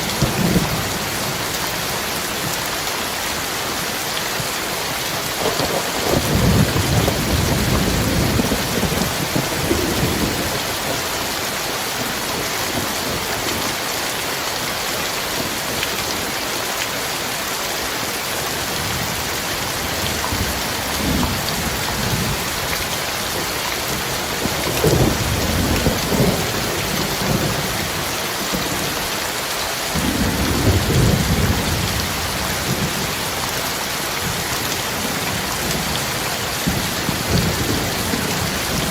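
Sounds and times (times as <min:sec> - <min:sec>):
heavy rain falling: 0:00.0 - 0:38.9
thunder rumbling: 0:05.4 - 0:11.1, 0:23.3 - 0:28.9, 0:30.0 - 0:33.4.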